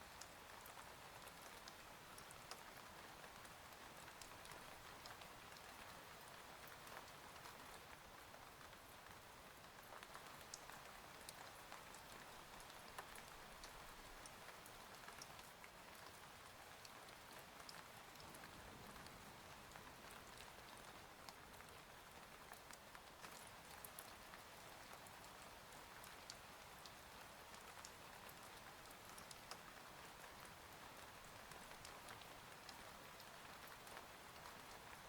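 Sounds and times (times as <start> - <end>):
faint steady rain: 0.0 - 35.0.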